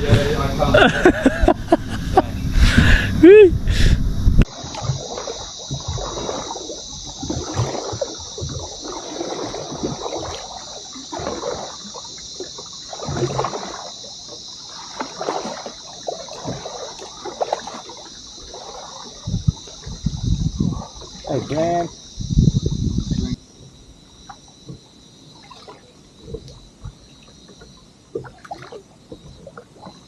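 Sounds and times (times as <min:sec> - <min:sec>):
high-pitched hiss: 0:00.0 - 0:09.0
paddle splashing in water: 0:00.0 - 0:30.0.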